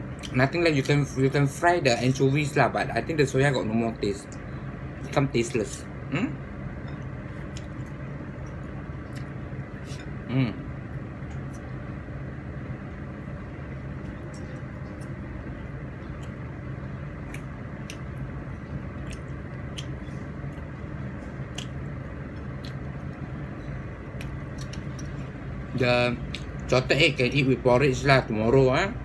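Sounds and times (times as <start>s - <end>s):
steady low hum: 0.0s - 29.0s
person chewing: 6.8s - 11.8s, 13.9s - 25.4s, 26.2s - 26.7s
wet mouth clicks and smacks: 17.2s - 18.2s, 19.0s - 20.0s, 21.4s - 22.9s, 24.1s - 25.2s.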